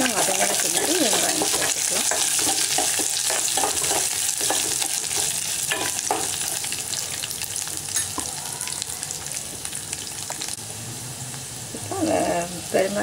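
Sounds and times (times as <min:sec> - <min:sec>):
food sizzling in hot oil: 0:00.0 - 0:13.0
spoon scraping a metal pot: 0:00.4 - 0:06.6.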